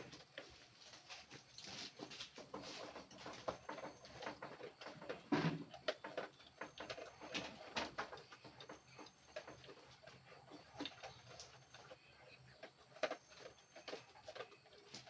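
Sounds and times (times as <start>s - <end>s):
dog paws tapping and scuffling: 0.0s - 11.9s.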